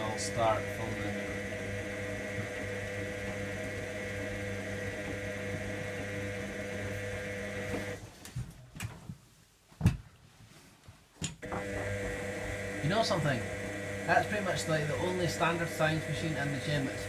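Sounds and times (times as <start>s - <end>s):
washing machine motor humming: 0.0s - 8.1s, 11.4s - 17.0s.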